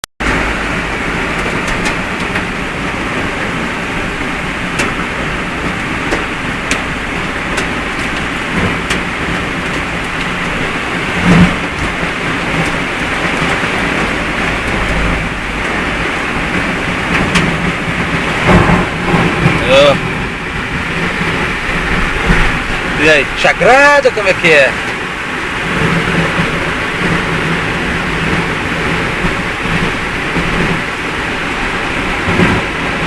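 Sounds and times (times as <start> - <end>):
tyres on wet road: 0.0 - 33.0
heavy rain: 0.2 - 33.0
low engine drone: 0.2 - 33.0
loud thump: 18.4 - 20.8.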